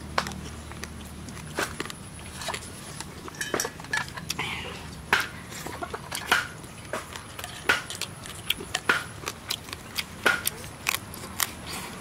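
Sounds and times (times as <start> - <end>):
person chewing and smacking lips: 0.0 - 12.0.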